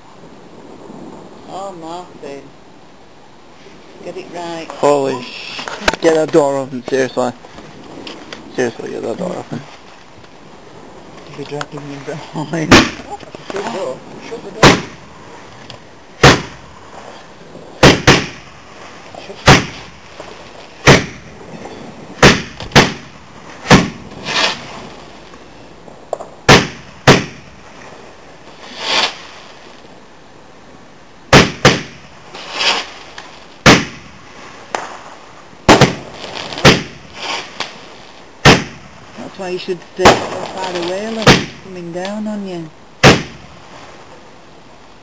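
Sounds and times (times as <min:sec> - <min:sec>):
fireworks bangs: 0:11.8 - 0:15.2, 0:16.2 - 0:25.1, 0:26.4 - 0:29.8, 0:31.3 - 0:39.2, 0:40.0 - 0:42.2, 0:43.0 - 0:43.8.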